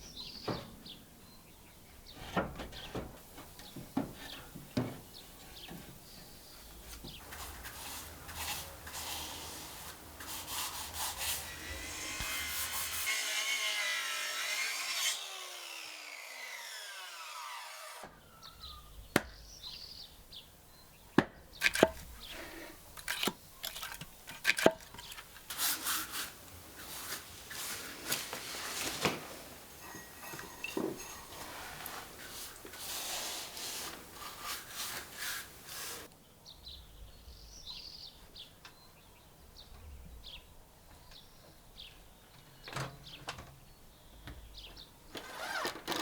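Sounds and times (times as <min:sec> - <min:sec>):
saw cutting wood: 0:08.8 - 0:18.2.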